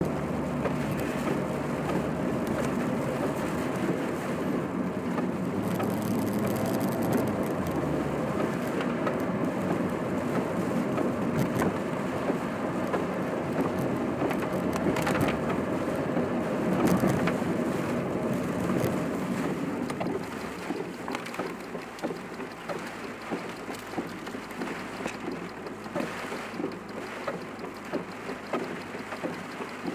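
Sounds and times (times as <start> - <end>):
car engine and road noise: 0.0 - 29.9
light taps on car: 18.6 - 29.9.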